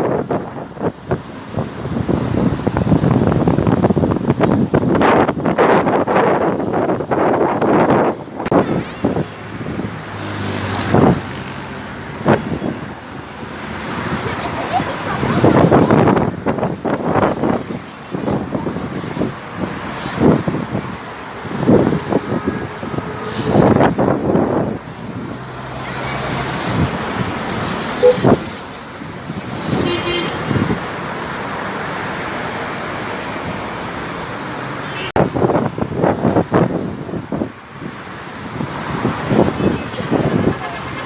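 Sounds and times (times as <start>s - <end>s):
road traffic passing: 0.0s - 41.0s
car horn: 28.0s - 28.5s, 29.7s - 30.5s, 40.1s - 41.0s.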